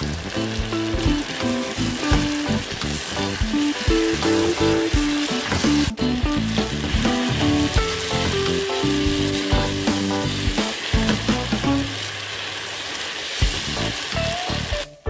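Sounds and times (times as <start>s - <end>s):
background music: 0.0s - 12.0s
chicken sizzling in hot oil: 0.0s - 15.0s.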